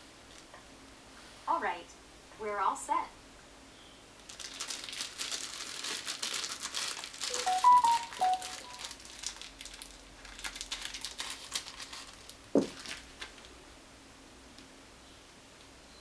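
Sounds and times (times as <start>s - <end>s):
plastic wrapping crinkling: 4.2s - 13.6s
short melodic chime: 7.3s - 8.8s.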